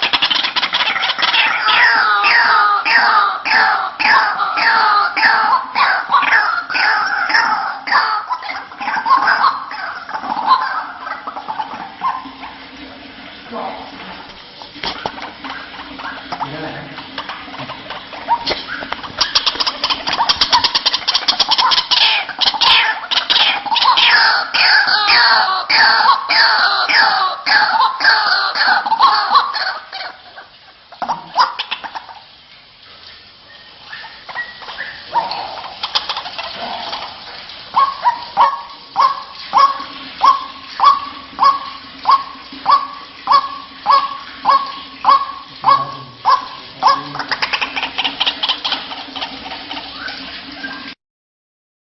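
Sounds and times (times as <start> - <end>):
waterhen calling: 0.0 - 51.0
bird honking calls: 37.7 - 50.9.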